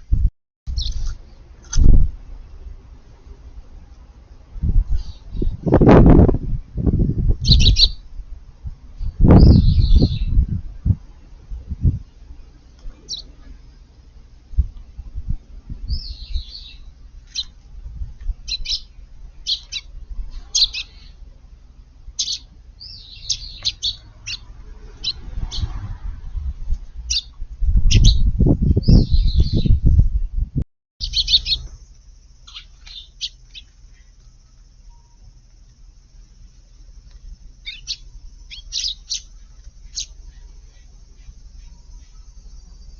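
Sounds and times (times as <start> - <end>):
sparrows chirping: 0.7 - 1.5, 4.9 - 5.9, 7.2 - 8.2, 8.9 - 10.4, 12.0 - 14.6, 15.8 - 25.9, 27.0 - 29.8, 31.0 - 42.9
loud low rumble: 24.1 - 31.3
steady high hiss: 31.0 - 42.9.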